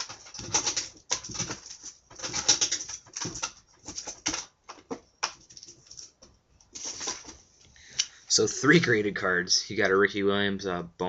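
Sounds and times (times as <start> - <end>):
trading cards rustling: 0.0 - 8.1.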